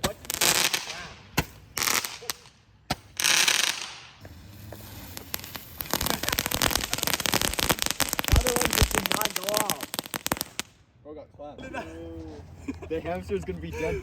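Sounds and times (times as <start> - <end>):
firework bangs: 0.0 - 10.8
firework crackling: 0.0 - 10.8
firework hissing bursts: 0.2 - 10.7.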